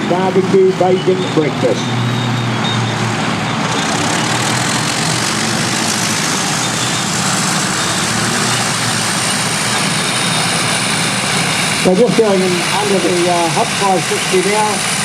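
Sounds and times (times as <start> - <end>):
diesel earthmoving machines running: 0.0 - 15.0.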